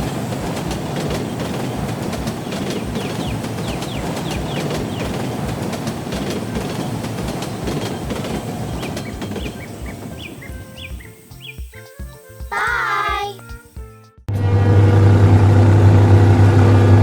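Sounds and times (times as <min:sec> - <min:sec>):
rumbling rattling machine: 0:00.0 - 0:11.1, 0:14.3 - 0:17.0.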